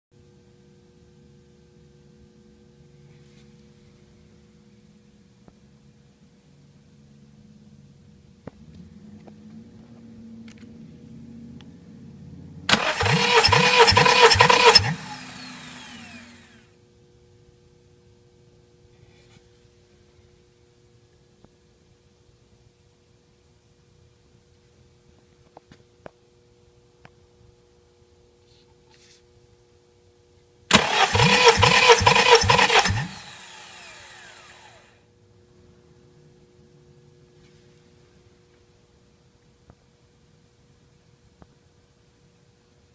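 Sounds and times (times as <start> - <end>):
starter winding down whine: 8.6 - 16.8, 30.7 - 35.0
engine cranking on starter motor: 12.7 - 16.7, 30.7 - 34.9.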